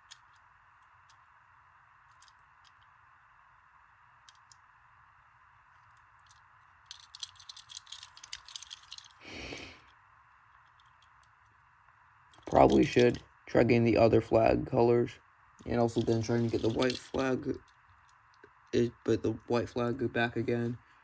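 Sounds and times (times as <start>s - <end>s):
toy cars clicking and tapping: 0.0s - 1.3s, 2.0s - 3.0s, 4.2s - 4.7s, 5.8s - 11.6s, 12.3s - 13.2s, 15.6s - 18.7s.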